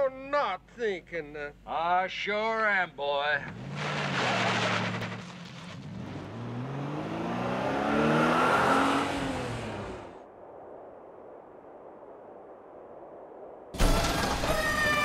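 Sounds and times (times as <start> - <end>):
car engine revving: 3.4 - 10.2.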